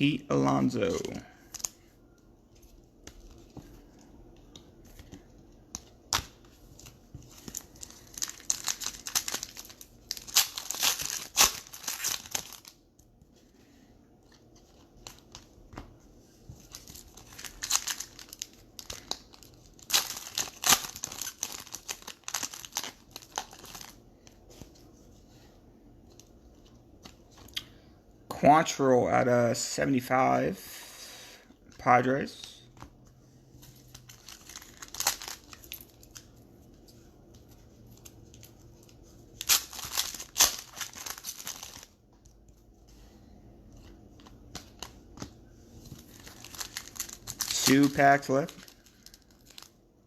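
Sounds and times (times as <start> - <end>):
card pack wrappers crinkling: 4.8 - 12.8, 16.6 - 24.0, 33.6 - 36.9, 37.5 - 42.5, 43.7 - 49.8.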